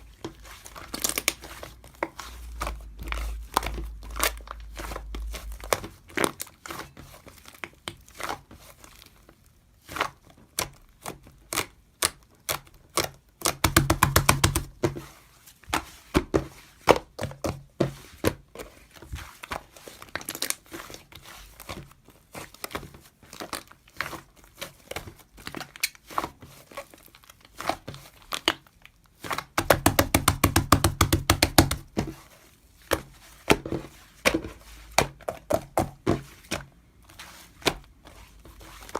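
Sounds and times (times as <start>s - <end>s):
slime squishing: 0.0s - 38.9s
rapid popping of slime: 9.9s - 15.0s, 29.2s - 32.2s, 32.9s - 36.7s.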